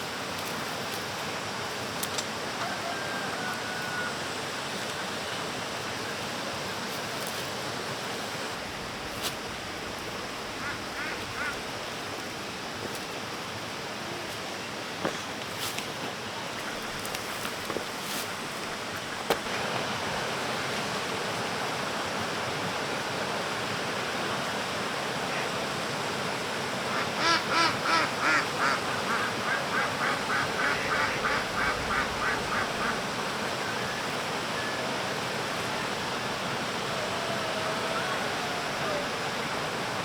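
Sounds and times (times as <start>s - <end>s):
duck quacking: 10.6s - 11.6s, 26.9s - 33.0s.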